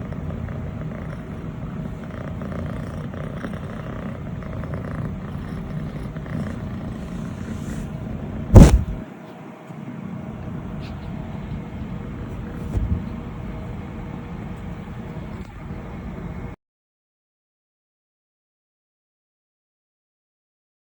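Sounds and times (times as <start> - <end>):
kitten purring: 0.0 - 9.0, 14.3 - 16.4
loud thump: 8.5 - 9.0
soft bump: 8.6 - 9.0.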